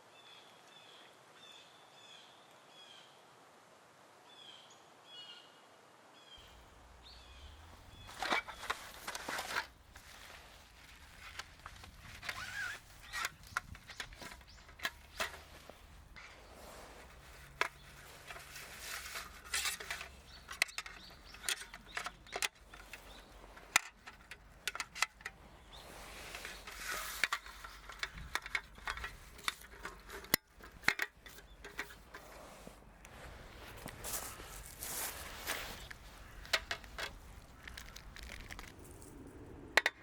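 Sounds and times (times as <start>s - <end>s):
rustling: 6.4s - 39.8s
small objects clicking and knocking: 7.4s - 16.3s, 17.1s - 25.4s, 26.3s - 32.3s, 35.5s - 40.0s.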